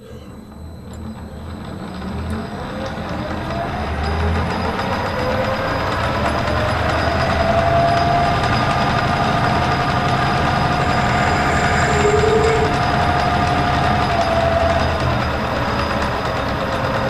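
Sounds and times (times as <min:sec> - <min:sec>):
metal lathe running: 0:05.8 - 0:13.8
drill cutting whine: 0:08.3 - 0:14.8.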